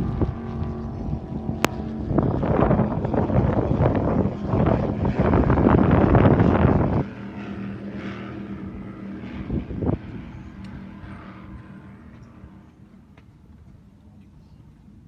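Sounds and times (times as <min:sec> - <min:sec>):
wind buffeting microphone: 0:00.0 - 0:12.6
engine drone: 0:00.0 - 0:15.0.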